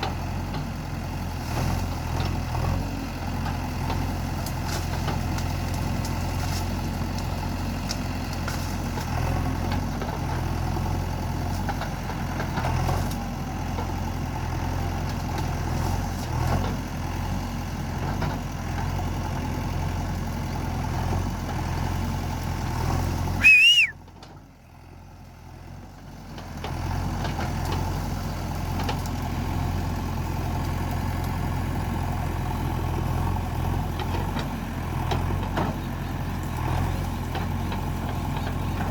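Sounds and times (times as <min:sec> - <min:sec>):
diesel engine running: 0:00.0 - 0:38.9
whistle-like squeal: 0:23.4 - 0:24.0.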